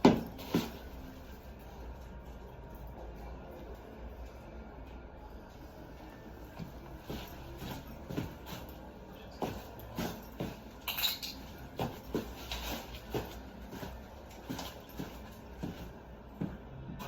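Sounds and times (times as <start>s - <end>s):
metallic knocks and clinks of tools: 9.8s - 12.7s.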